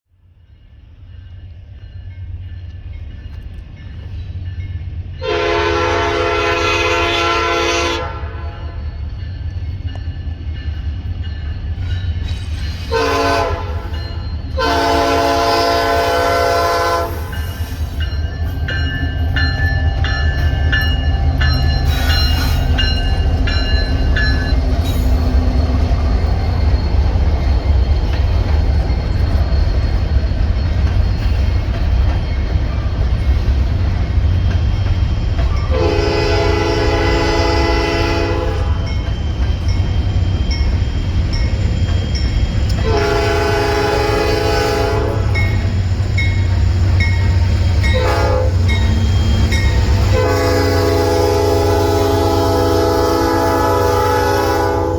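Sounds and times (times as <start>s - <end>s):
passing train rumble: 0.1s - 54.9s
train air horn blasts: 5.2s - 8.8s, 12.8s - 14.0s, 14.6s - 17.7s, 35.7s - 38.9s, 42.8s - 45.7s, 47.8s - 48.9s, 49.8s - 54.9s
bell ringing: 17.3s - 25.3s.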